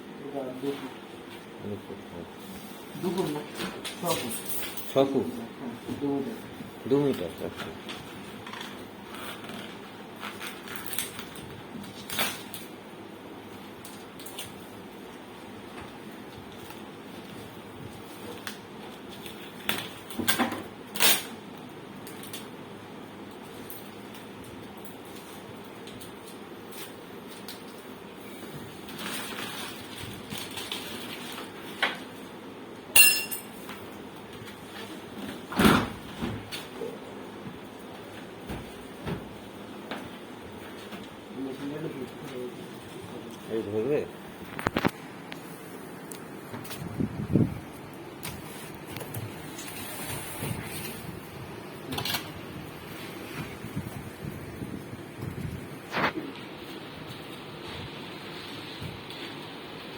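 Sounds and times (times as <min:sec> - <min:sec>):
metallic clink ringing: 0:33.0 - 0:33.5.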